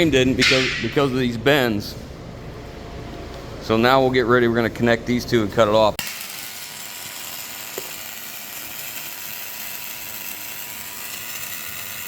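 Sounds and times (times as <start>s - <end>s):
plasma cutter hissing: 6.0s - 12.0s.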